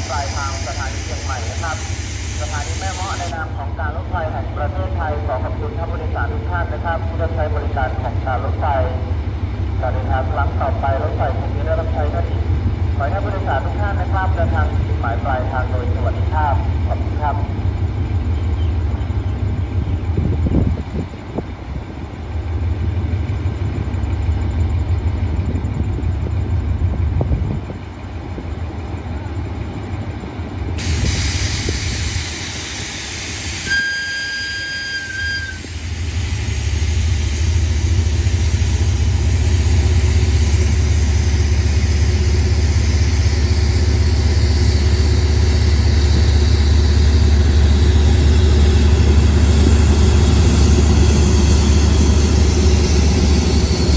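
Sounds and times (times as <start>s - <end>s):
hiss: 0.0s - 3.4s, 30.8s - 47.0s
diesel train engine rumbling: 0.0s - 53.9s
train whistle blast: 33.6s - 35.8s.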